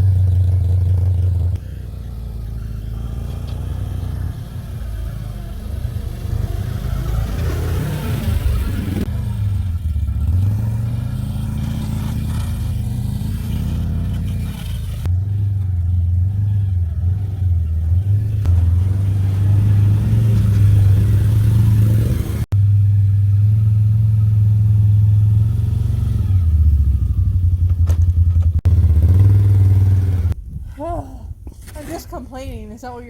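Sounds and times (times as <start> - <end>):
plow pushing through snow: 0.0 - 22.5
atv engine droning: 0.0 - 30.4.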